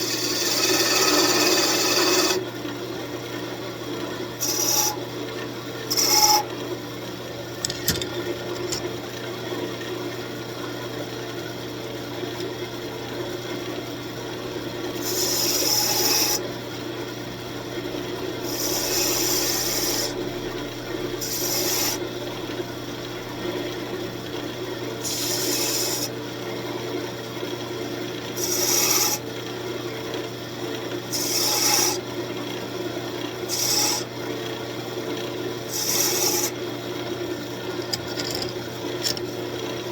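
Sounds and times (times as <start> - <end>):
wood lathe motor hum: 0.0 - 2.4, 4.4 - 5.0, 14.4 - 16.6, 17.7 - 26.1, 37.8 - 39.3.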